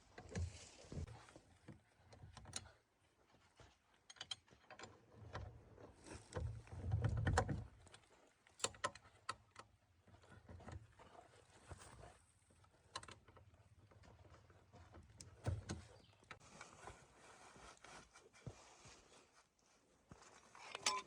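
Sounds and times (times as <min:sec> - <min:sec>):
tools and parts clicking: 0:20.7 - 0:21.0.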